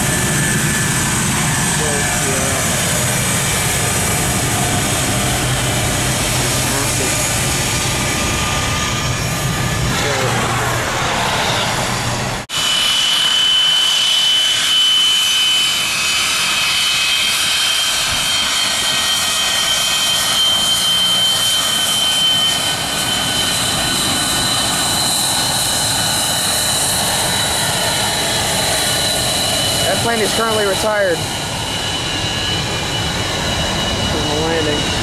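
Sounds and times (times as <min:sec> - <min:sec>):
jet engines rushing and whining: 0:00.0 - 0:35.0.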